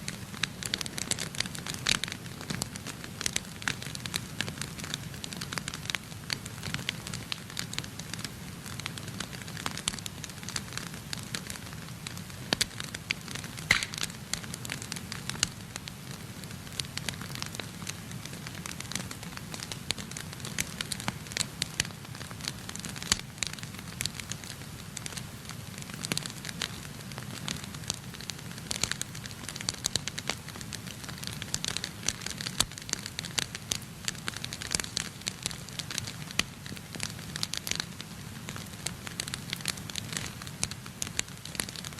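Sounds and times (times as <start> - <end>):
low fire rumble: 0.0 - 41.9
wood fire crackling and popping: 0.0 - 41.9.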